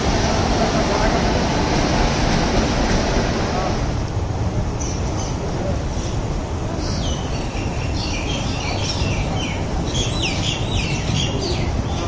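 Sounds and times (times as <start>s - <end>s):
train rumbling past: 0.0s - 12.0s
birds chirping: 4.8s - 12.0s.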